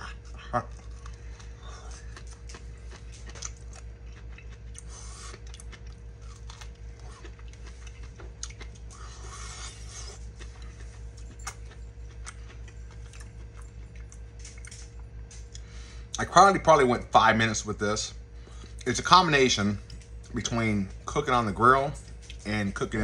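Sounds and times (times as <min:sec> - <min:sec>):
person chewing corn: 0:00.0 - 0:16.3, 0:21.9 - 0:22.6
steady low hum: 0:00.0 - 0:23.0
crunching clicks: 0:10.5 - 0:15.7.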